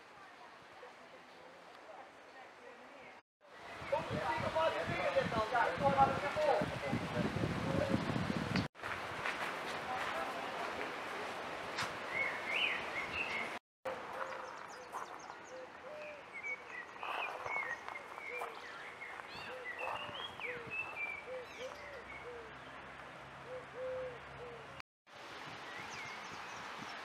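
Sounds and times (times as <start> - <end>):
low hooting bird calls: 12.1 - 22.8, 23.4 - 24.8.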